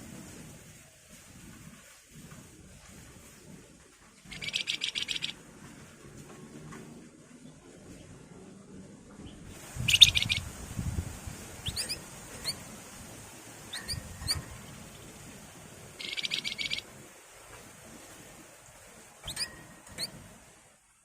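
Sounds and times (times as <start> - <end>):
bird buzzy trills: 4.3 - 5.4, 9.8 - 10.5, 11.6 - 12.7, 13.6 - 15.2, 15.9 - 16.9, 19.2 - 20.3
thin upslurred bird notes: 4.3 - 5.4, 9.8 - 10.4, 13.7 - 14.6, 16.0 - 16.9, 19.2 - 20.2.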